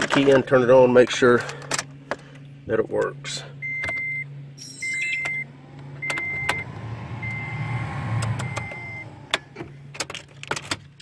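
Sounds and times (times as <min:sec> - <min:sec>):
vehicle warning chime beeping: 0:03.6 - 0:09.3
blower fan hum: 0:05.2 - 0:10.1.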